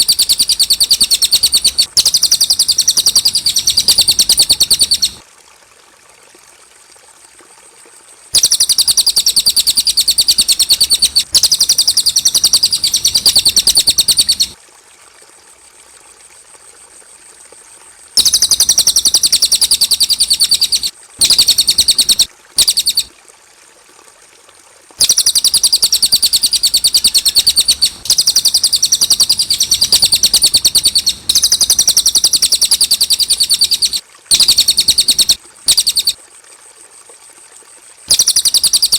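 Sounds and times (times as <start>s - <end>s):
songbird singing high trills: 0.0s - 5.2s, 8.4s - 14.6s, 18.2s - 23.1s, 25.0s - 36.2s, 38.1s - 38.9s.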